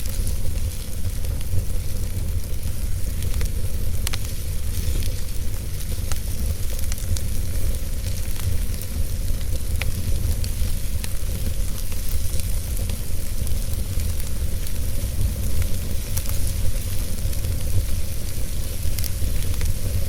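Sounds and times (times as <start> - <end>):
logs crackling and popping: 0.0 - 20.0
wood fire rumbling and hissing: 0.0 - 20.0.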